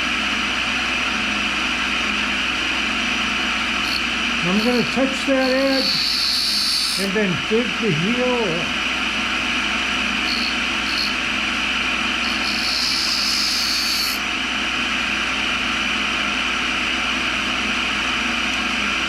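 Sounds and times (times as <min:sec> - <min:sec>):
grinder motor running: 0:00.0 - 0:19.0
drill bit grinding on wheel: 0:03.6 - 0:08.5, 0:10.0 - 0:14.3.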